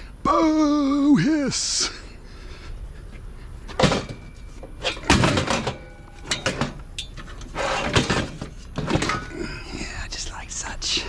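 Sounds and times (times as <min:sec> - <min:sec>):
scrap metal clattering and scraping: 0:03.7 - 0:09.3
faint metallic ringing: 0:03.8 - 0:07.3.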